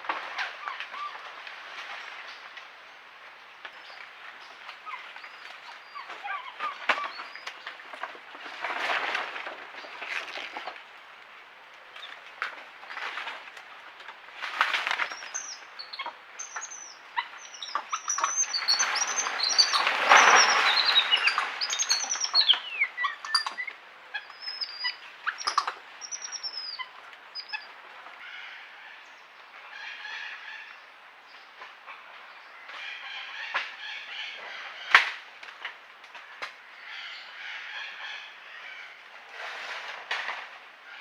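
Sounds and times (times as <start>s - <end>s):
birds chirping: 15.0s - 27.7s.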